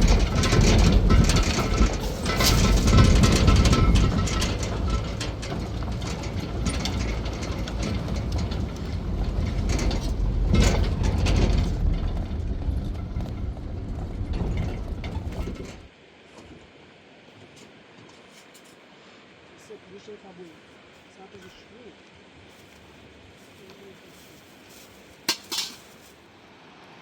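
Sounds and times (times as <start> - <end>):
low rumble: 0.0 - 15.9
mechanical rattling and clattering: 0.0 - 15.9.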